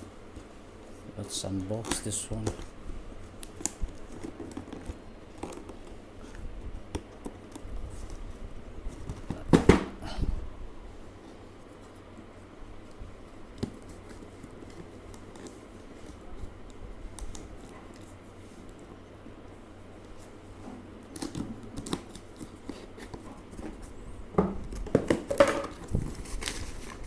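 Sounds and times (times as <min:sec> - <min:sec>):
cardboard package rustling: 0:25.0 - 0:27.0.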